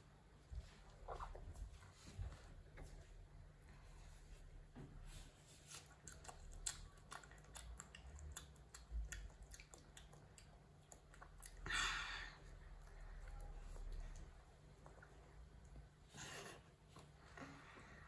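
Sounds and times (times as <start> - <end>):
children chewing strawberries: 0.0 - 18.0.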